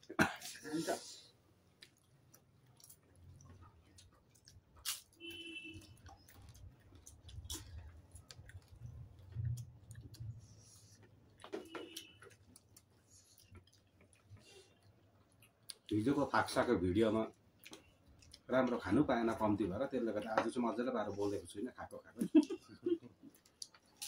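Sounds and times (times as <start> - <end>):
chewing and mouth noises: 1.5 - 16.1, 17.2 - 19.0, 21.9 - 24.0.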